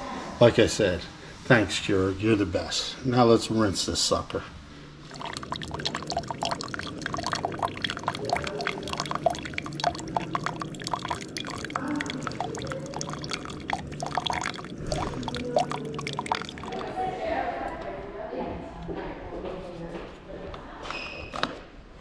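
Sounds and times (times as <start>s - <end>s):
water pouring into a cup: 5.0s - 17.0s.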